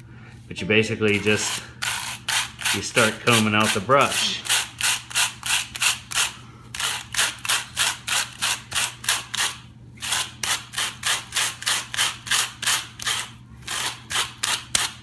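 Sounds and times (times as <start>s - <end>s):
wire brush scratching roller brush: 1.0s - 6.0s.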